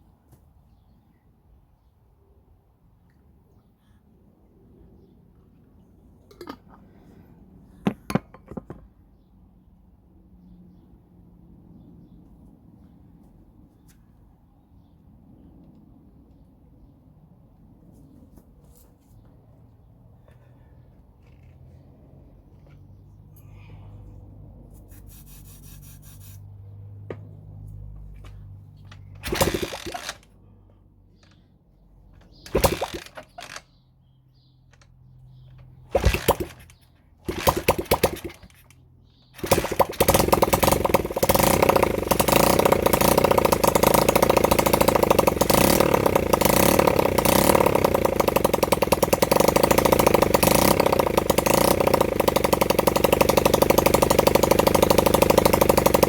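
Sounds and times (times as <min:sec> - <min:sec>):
motorcycle engine starting: 0:28.0 - 0:30.4, 0:32.1 - 0:56.0.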